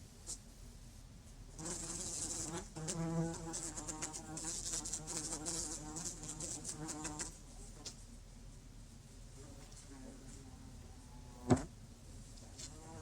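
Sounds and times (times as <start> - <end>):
insect buzzing: 1.6 - 7.9.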